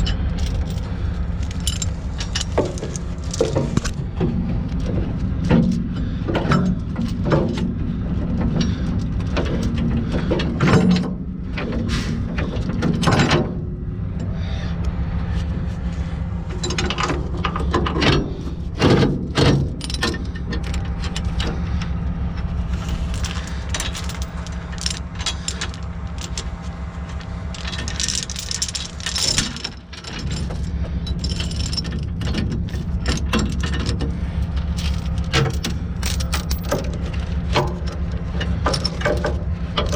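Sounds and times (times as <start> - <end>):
metallic clinks and rattles: 0.0 - 4.0, 4.8 - 7.8, 16.5 - 39.9
diesel truck engine idling: 0.0 - 12.8, 13.5 - 39.9.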